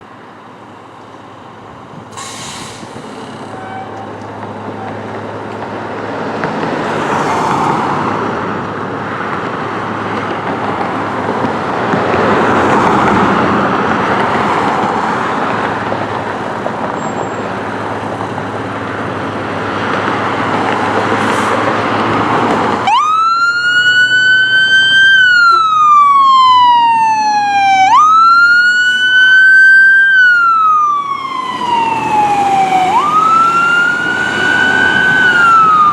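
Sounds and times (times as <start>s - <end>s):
fire engine rumble and road noise: 0.0s - 35.9s
electronic siren wailing: 22.8s - 35.9s.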